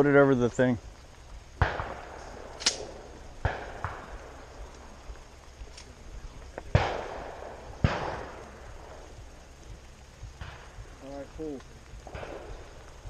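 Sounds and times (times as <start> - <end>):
shotgun shots echoing: 1.6 - 4.4, 6.7 - 9.0.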